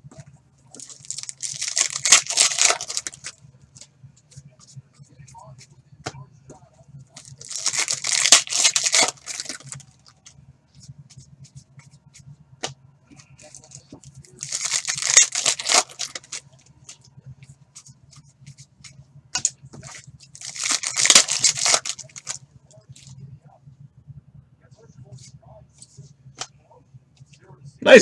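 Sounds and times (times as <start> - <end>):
foil wrappers tearing and crinkling: 0.7 - 3.4, 7.2 - 9.8, 13.4 - 16.4, 19.4 - 22.4
cards clicking: 0.8 - 3.9, 7.2 - 9.8, 12.6 - 16.4, 19.4 - 22.4.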